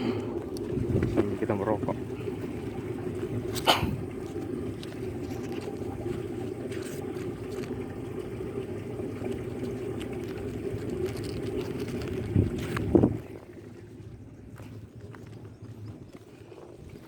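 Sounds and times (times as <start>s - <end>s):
wind buffeting microphone: 0.0s - 6.6s, 11.2s - 17.0s.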